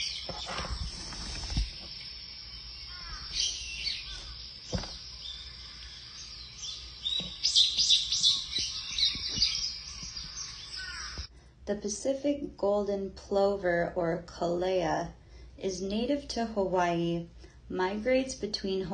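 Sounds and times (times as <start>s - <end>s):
bird chirping: 0.0s - 11.3s.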